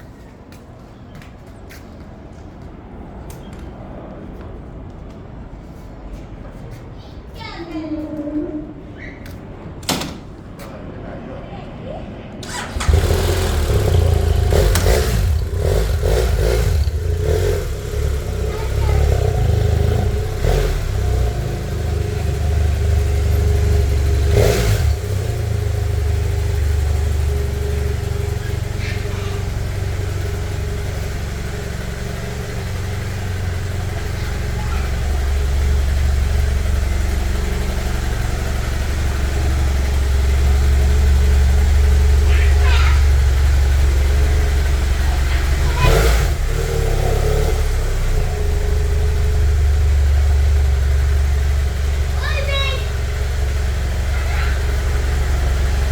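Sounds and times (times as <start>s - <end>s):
motorcycle engine revving: 12.4s - 55.9s.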